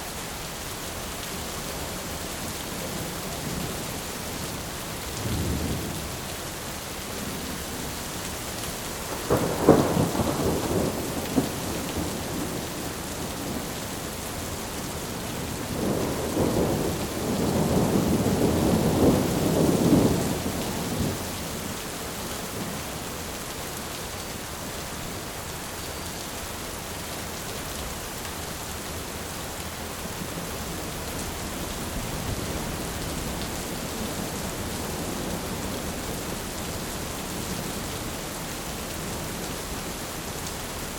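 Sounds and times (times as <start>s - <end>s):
heavy rain hiss: 0.0s - 40.9s
rolling thunder rumble: 9.1s - 13.8s, 15.4s - 21.4s.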